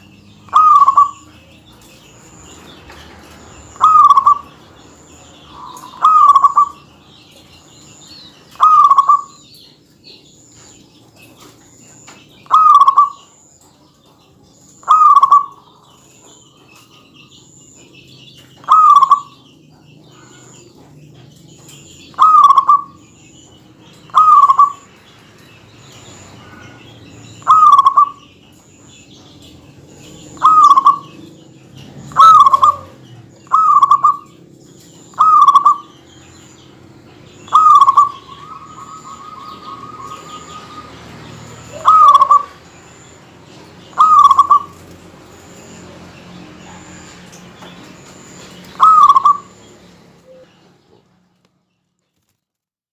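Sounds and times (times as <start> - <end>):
dove cooing: 0.5 - 1.4, 3.5 - 4.6, 5.2 - 7.3, 8.5 - 9.5, 12.4 - 13.3, 14.8 - 16.4, 18.6 - 19.4, 21.7 - 23.0, 24.1 - 24.9, 26.4 - 28.3, 30.4 - 31.4, 32.0 - 34.4, 35.0 - 36.1, 37.4 - 43.0, 43.9 - 44.9, 47.9 - 50.7.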